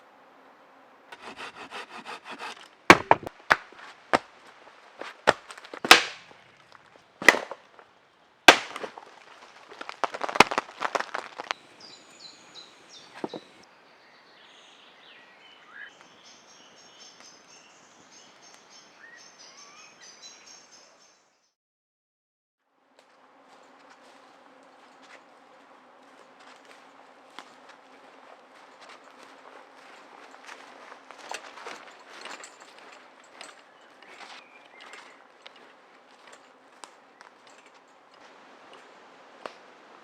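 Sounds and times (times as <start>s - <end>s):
hand saw rasping: 1.1s - 3.3s
sharp knocks on wood: 1.2s - 4.3s.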